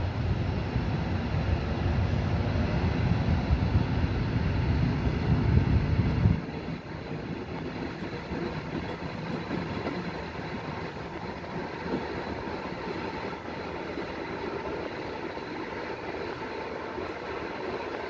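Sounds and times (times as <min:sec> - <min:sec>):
rumble of wheels on rails: 0:00.0 - 0:18.0.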